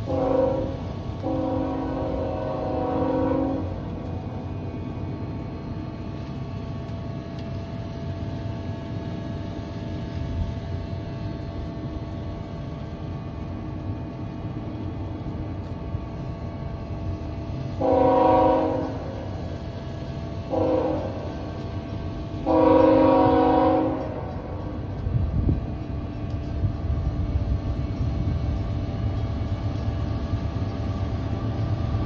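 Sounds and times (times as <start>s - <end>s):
locomotive horn blast: 0.0s - 4.0s, 17.8s - 19.3s, 20.5s - 21.5s, 22.4s - 24.8s
train rumbling: 0.0s - 32.0s.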